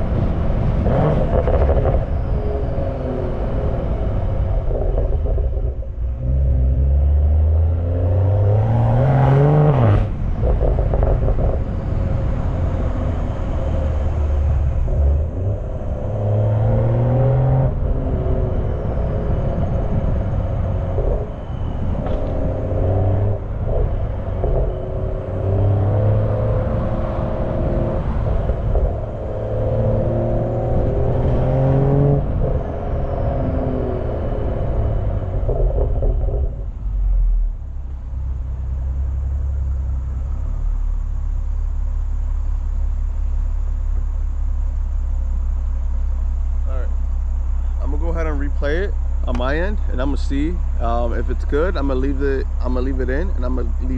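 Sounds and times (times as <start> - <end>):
car exhaust revving: 0.0 - 53.9
wind noise on microphone: 8.2 - 37.0.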